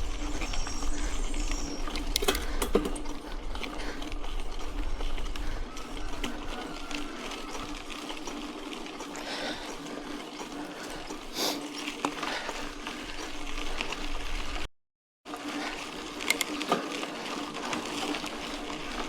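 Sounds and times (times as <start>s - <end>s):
bike mechanical ticks and rattles: 0.0s - 14.7s, 15.3s - 19.0s
bike tyres on gravel: 0.0s - 14.7s, 15.3s - 19.0s
bike click: 0.1s - 6.8s, 16.2s - 17.0s.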